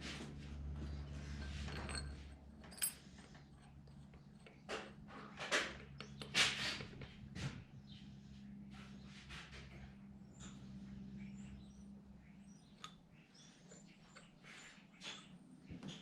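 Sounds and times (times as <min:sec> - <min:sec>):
scrapes and knocks of tools: 0:00.0 - 0:07.8, 0:08.6 - 0:11.6, 0:12.8 - 0:16.0
metallic clink: 0:01.4 - 0:03.2.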